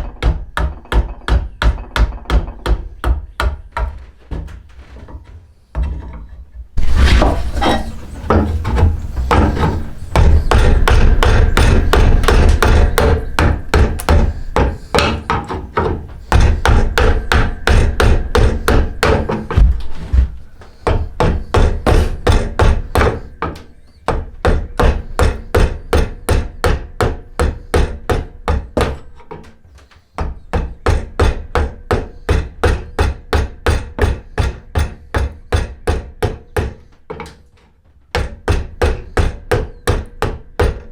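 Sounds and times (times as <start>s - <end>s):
hand tool striking wood: 0.0s - 4.6s, 6.8s - 29.5s, 38.1s - 40.9s.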